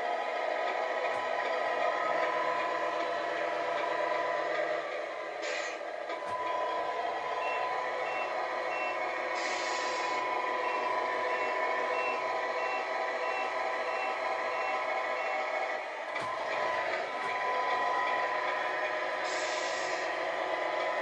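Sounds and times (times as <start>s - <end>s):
truck engine sound: 0.0s - 21.0s
reversing beeper: 6.2s - 18.3s
short hiss: 9.4s - 10.2s, 19.3s - 20.1s.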